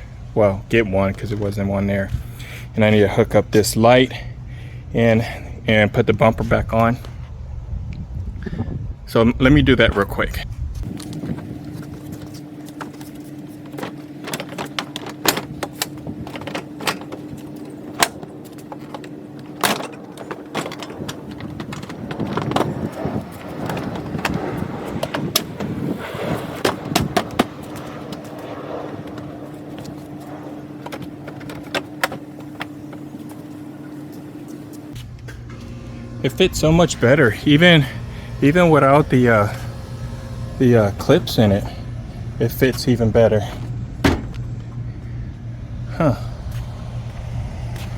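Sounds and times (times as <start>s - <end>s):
steady hum: 10.5s - 47.9s
rustling and scraping: 10.7s - 37.3s.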